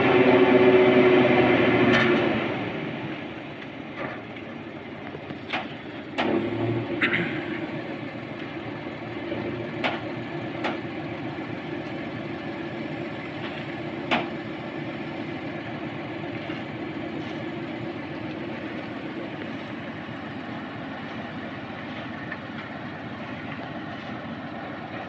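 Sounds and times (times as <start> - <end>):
truck engine running: 0.0 - 25.0.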